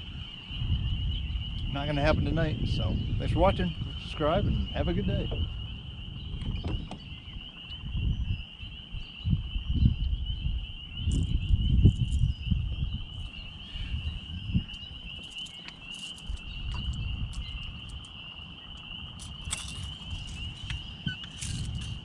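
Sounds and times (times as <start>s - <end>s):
frogs trilling chorus: 0.0s - 22.0s
wind buffeting microphone: 0.0s - 22.0s.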